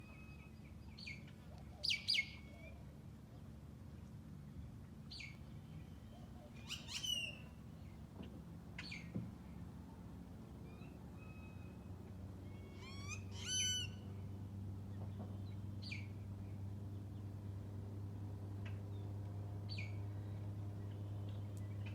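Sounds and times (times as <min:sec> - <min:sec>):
birds calling: 0:05.2 - 0:08.0, 0:10.7 - 0:17.4.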